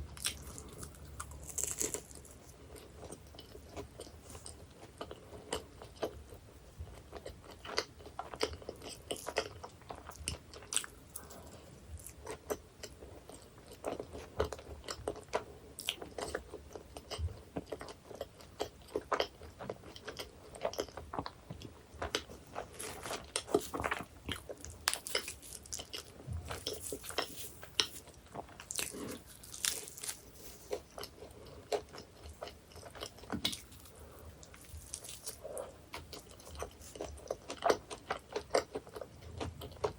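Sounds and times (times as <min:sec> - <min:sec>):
pastry crunching: 0:00.1 - 0:06.2, 0:07.1 - 0:39.9
moist chewing: 0:07.0 - 0:39.9.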